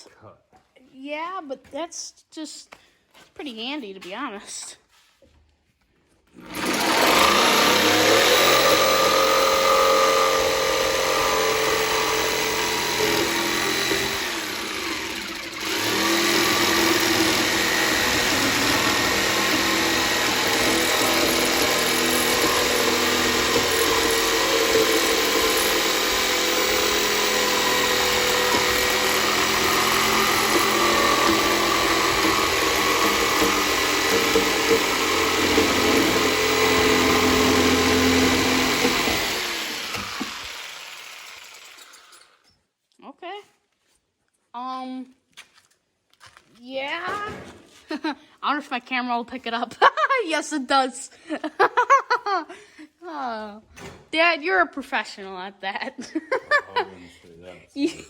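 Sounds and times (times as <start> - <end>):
power saw cutting wood: 6.4 - 42.5.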